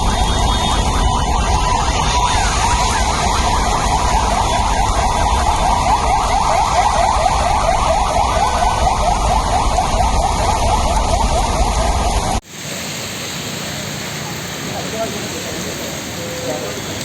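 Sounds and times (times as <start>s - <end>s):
electronic siren sweeping: 0.0s - 12.4s
rain hissing: 12.2s - 17.0s.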